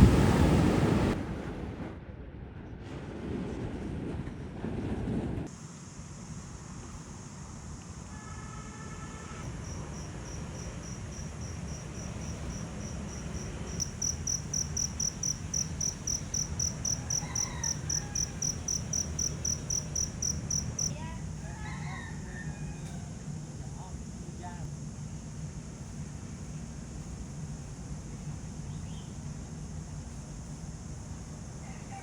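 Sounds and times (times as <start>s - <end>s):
insect chirping: 9.5s - 22.4s, 23.0s - 32.0s.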